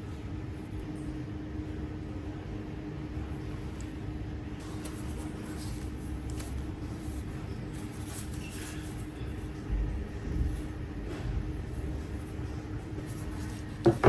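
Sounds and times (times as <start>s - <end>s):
low room hum: 0.0s - 14.0s
items handled on a desk: 13.4s - 14.0s.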